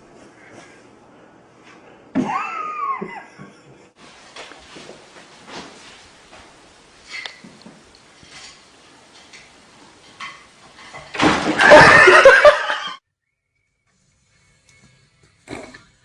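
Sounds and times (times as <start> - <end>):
loud burst of human laughter: 2.2 - 3.5, 11.6 - 13.0.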